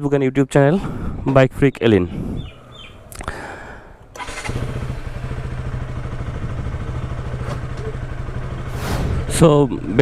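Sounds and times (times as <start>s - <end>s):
motorcycle engine running: 3.7s - 10.0s.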